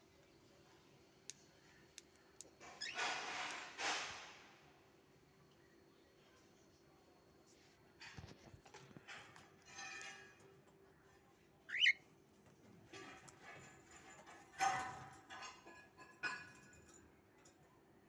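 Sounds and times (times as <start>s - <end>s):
pet birds chirping: 11.7s - 12.0s.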